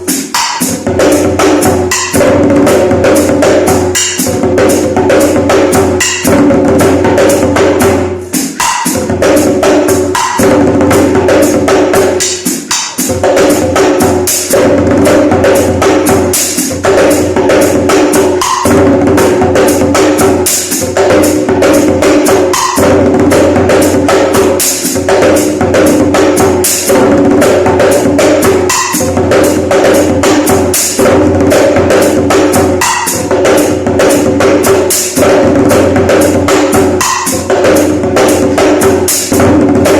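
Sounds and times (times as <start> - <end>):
hand drumming on djembe: 0.0 - 39.9.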